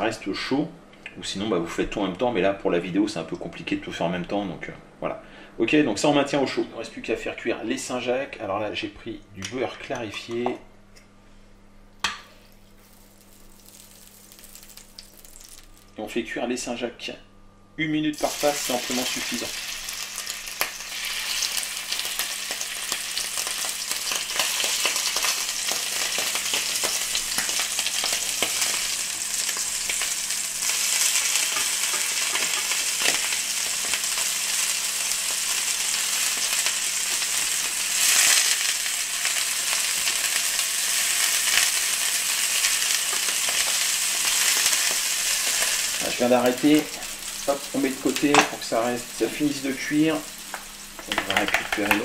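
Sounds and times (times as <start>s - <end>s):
scallops sizzling in a pan: 12.2s - 15.9s, 18.2s - 52.0s.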